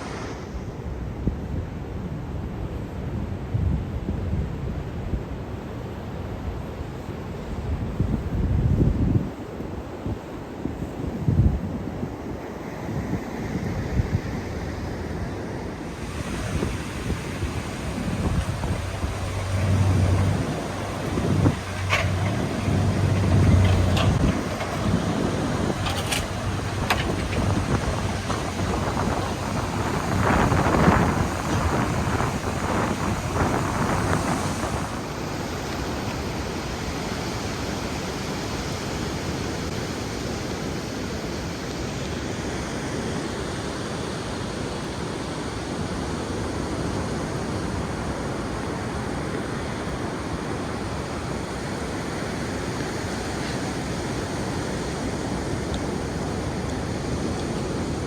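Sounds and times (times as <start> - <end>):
ocean surf washing: 0.0 - 1.1, 4.6 - 58.0
wind buffeting microphone: 7.6 - 14.8, 15.9 - 35.6.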